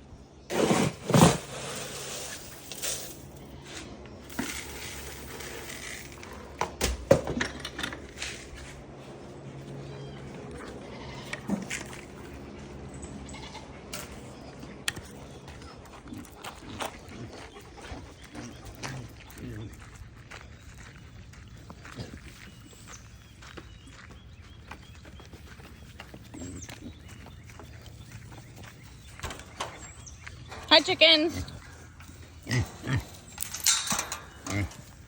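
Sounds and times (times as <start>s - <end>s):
goats bleating: 10.5s - 11.5s, 13.2s - 13.8s.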